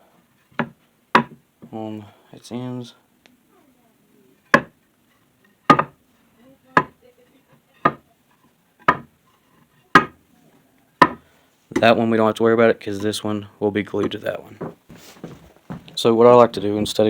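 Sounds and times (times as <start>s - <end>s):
wooden knocks on workbench: 4.5s - 4.7s, 5.7s - 6.0s, 7.8s - 8.0s, 8.8s - 9.1s, 10.0s - 10.2s, 11.0s - 11.2s.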